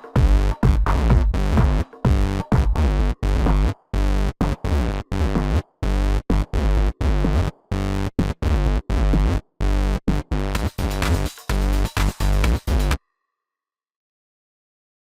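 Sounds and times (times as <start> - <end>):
stuttering electro house music: 0.0 - 13.0.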